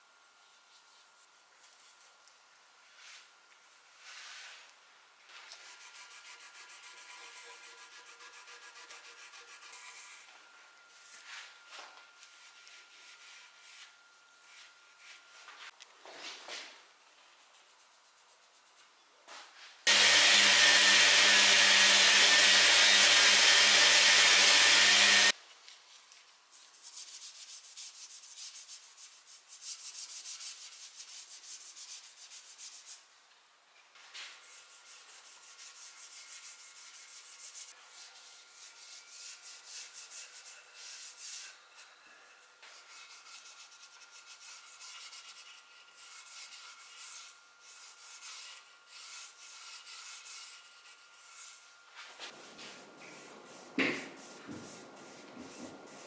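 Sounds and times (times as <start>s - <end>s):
power tool running: 19.9s - 25.3s
hand rubbing on wood: 42.7s - 56.0s.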